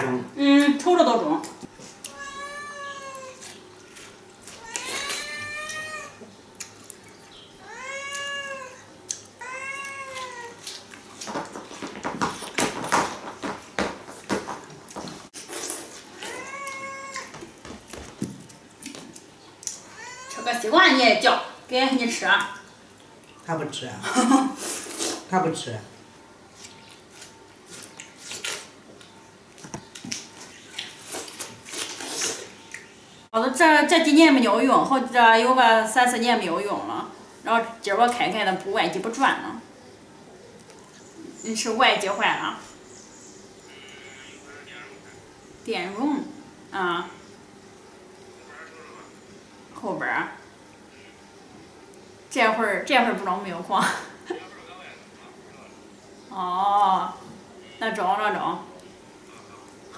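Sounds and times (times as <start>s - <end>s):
cat meowing: 2.0s - 3.5s, 4.6s - 6.2s, 7.6s - 10.7s, 16.2s - 17.4s, 19.8s - 21.0s.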